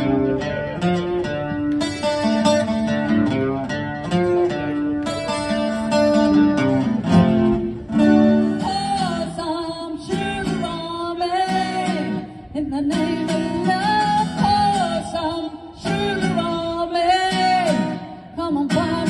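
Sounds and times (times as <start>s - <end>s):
strummed guitar chords: 0.0s - 19.0s
person singing: 8.3s - 19.0s.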